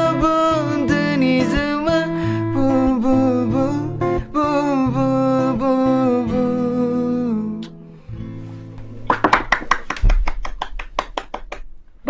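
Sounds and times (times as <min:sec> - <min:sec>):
person singing long notes: 0:00.0 - 0:07.8
strummed acoustic guitar: 0:00.0 - 0:09.4.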